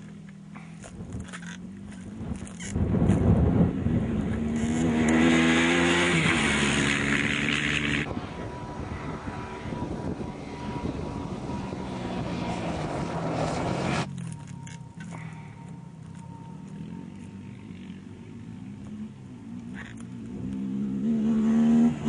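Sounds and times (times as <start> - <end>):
rally car engine revving hard: 3.2 - 8.1, 20.9 - 22.0.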